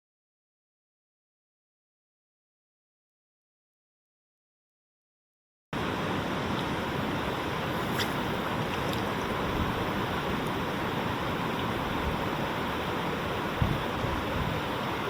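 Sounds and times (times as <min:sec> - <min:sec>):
creek water rushing: 0:05.8 - 0:15.0.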